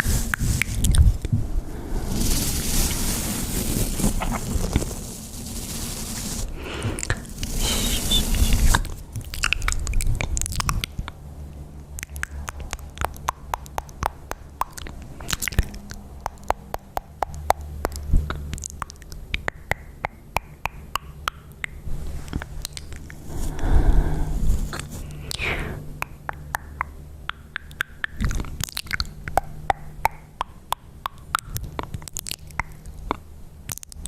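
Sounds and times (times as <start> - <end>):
wet lip and tongue clicks: 0.0 - 1.4, 7.0 - 23.3, 24.7 - 34.0
rustle: 0.0 - 10.8.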